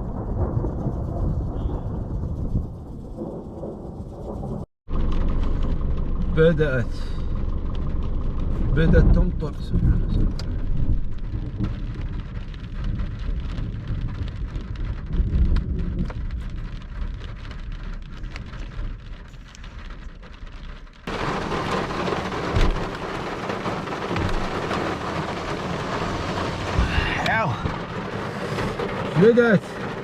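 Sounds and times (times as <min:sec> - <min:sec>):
low rumble of thunder: 0:00.0 - 0:30.0
raindrops ticking: 0:04.9 - 0:30.0
heavy rain hissing: 0:21.1 - 0:30.0.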